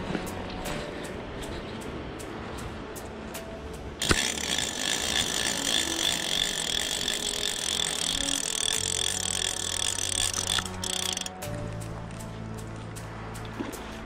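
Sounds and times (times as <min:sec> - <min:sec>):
fly reel drag buzzing: 0:04.0 - 0:11.4.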